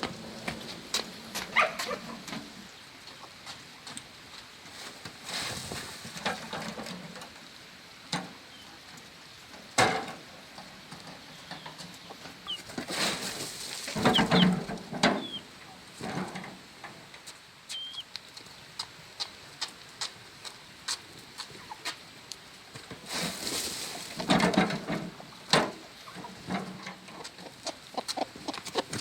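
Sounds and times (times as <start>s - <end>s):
chickens clucking: 0.1s - 4.1s, 10.4s - 18.6s, 19.2s - 22.1s, 23.0s - 29.0s
small birds chirping: 11.1s - 12.8s, 13.8s - 15.7s, 17.6s - 18.8s.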